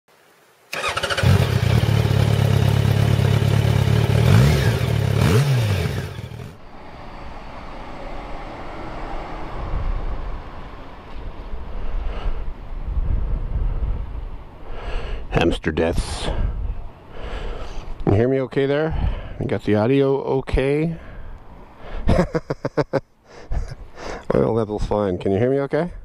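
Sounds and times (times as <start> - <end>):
motorcycle engine idling and revving: 0.8 - 10.3.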